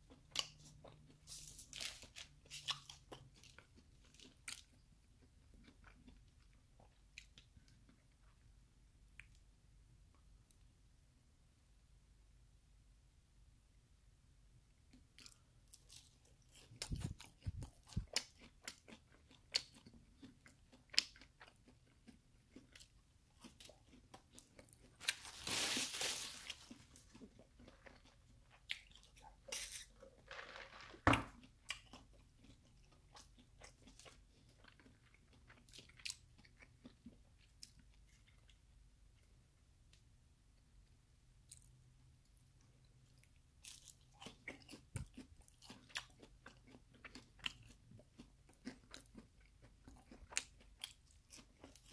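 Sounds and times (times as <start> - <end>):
crunchy chewing: 0.0 - 8.4, 14.9 - 38.6, 43.1 - 51.9.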